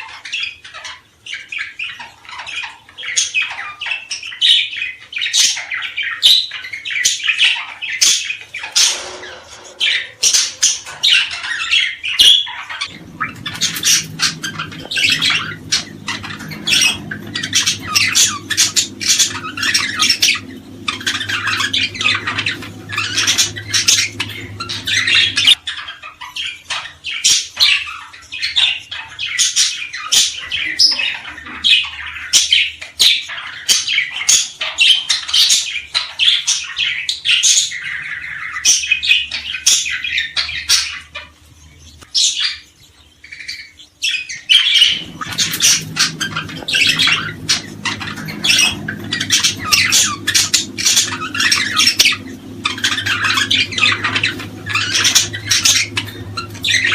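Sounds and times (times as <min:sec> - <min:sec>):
small birds chirping and squawking: 0:00.0 - 0:56.9
low steady hum: 0:08.5 - 0:25.9, 0:44.6 - 0:56.9.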